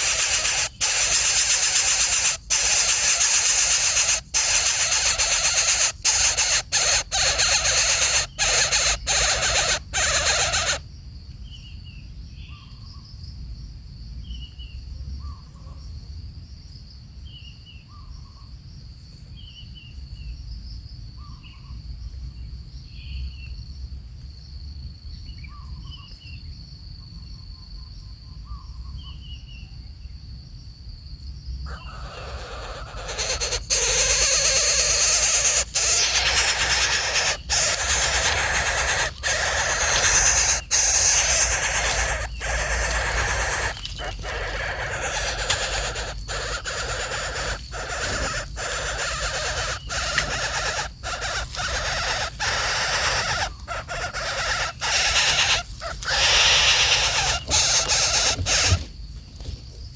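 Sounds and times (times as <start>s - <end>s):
coucal calling: 0.0s - 10.8s, 31.7s - 58.9s
high insect drone: 0.0s - 10.8s, 31.7s - 59.8s.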